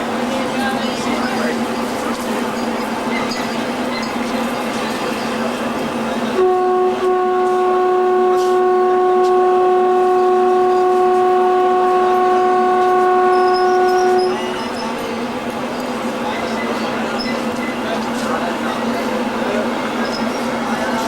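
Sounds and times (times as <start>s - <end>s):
moving train rushing noise: 0.0s - 21.0s
train horn blast: 6.3s - 14.8s.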